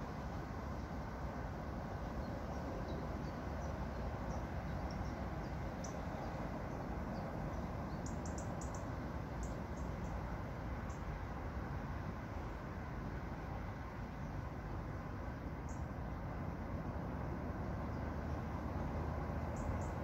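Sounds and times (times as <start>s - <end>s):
low outdoor rumble: 0.0s - 20.0s
small birds chirping: 2.2s - 11.1s, 19.4s - 20.0s.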